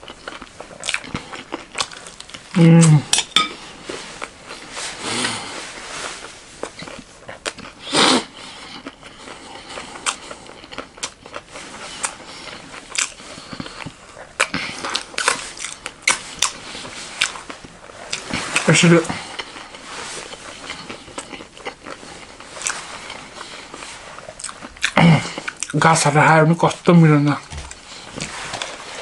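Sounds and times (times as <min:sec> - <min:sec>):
crunchy snack chewing: 0:00.0 - 0:03.3, 0:06.6 - 0:25.8.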